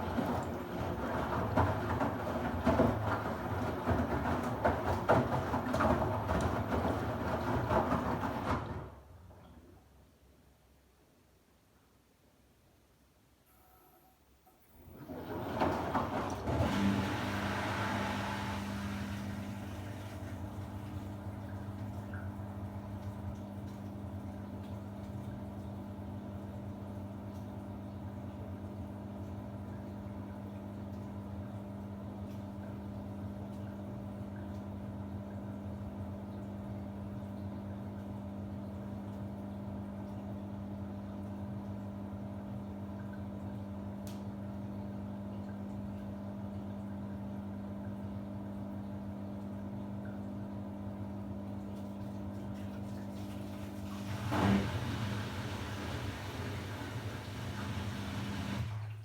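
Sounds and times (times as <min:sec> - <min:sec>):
washing machine humming: 0:00.0 - 0:10.3, 0:13.5 - 0:59.0
water rushing: 0:53.1 - 0:59.0.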